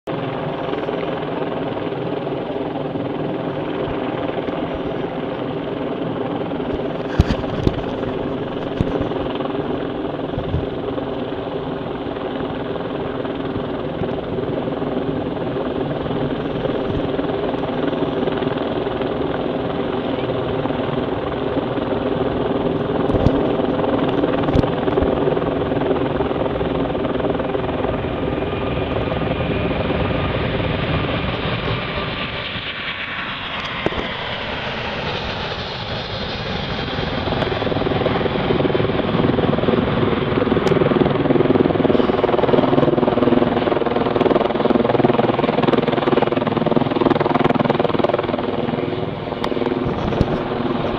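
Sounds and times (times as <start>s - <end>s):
jet airliner taking off: 28.6s - 40.8s.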